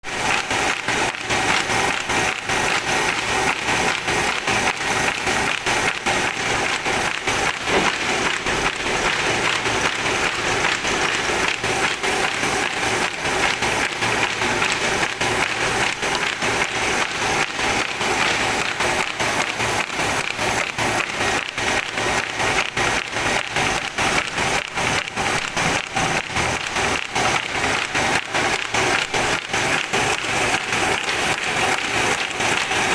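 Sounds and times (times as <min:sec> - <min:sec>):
folding machine clacking: 0:00.7 - 0:20.3.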